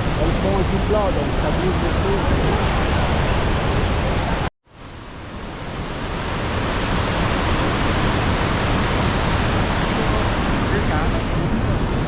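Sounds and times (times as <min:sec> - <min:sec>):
waterfall roaring: 0:06.1 - 0:12.0.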